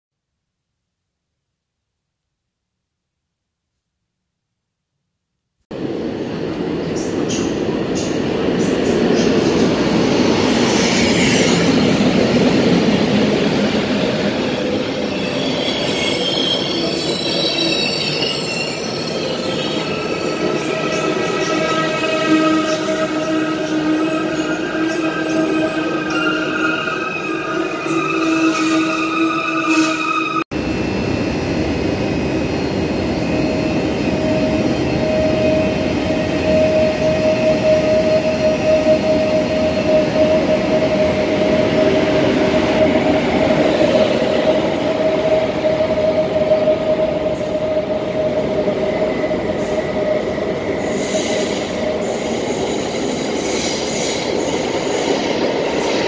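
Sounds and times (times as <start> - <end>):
train rumbling past: 5.7 - 56.0
high metallic wheel squeal: 14.5 - 30.4.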